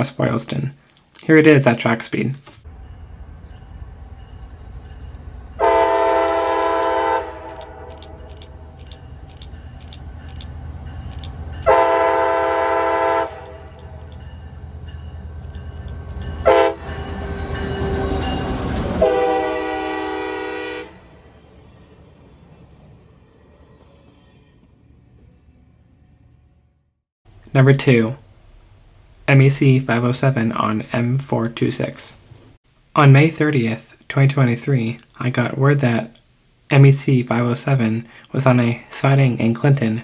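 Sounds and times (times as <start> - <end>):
passing train rumble: 2.6 - 32.6
locomotive horn blasts: 5.6 - 8.6, 11.6 - 14.1, 16.3 - 18.3, 19.0 - 21.1.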